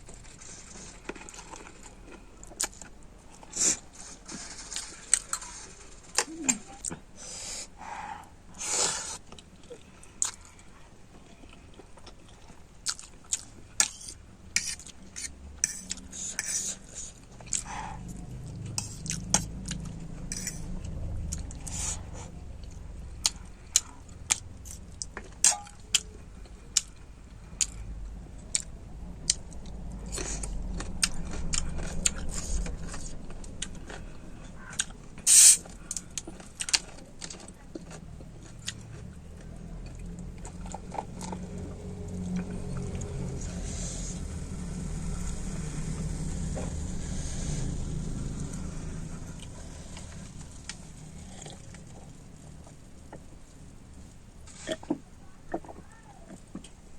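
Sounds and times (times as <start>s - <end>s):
chewing: 0.0s - 7.0s, 8.1s - 56.8s
cutlery clinking against bowl: 25.5s - 25.8s.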